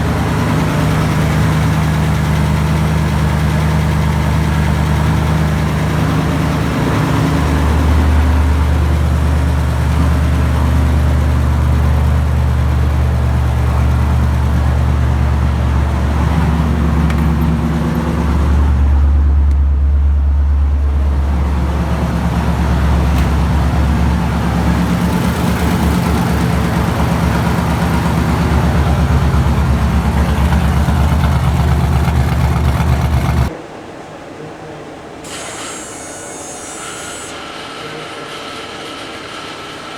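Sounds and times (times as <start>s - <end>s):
car engine idling: 0.0s - 33.6s.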